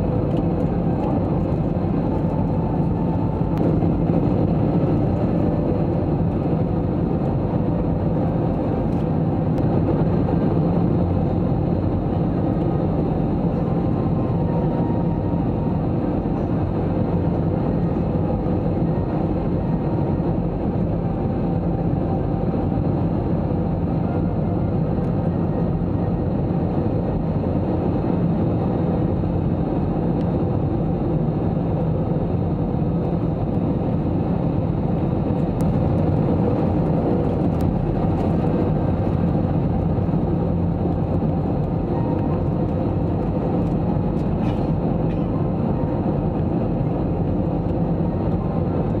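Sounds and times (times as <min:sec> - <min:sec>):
airliner cabin engine roar: 0:00.0 - 0:49.0.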